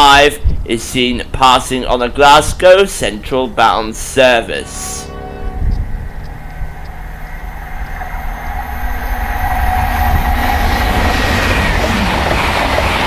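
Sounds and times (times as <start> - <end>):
train passing at speed: 3.5 - 13.0
wheel-on-rail noise: 5.1 - 13.0.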